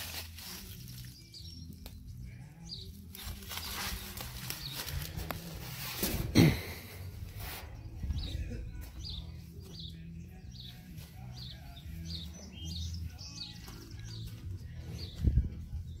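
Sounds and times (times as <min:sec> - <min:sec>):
bird chirping: 0:07.8 - 0:16.0.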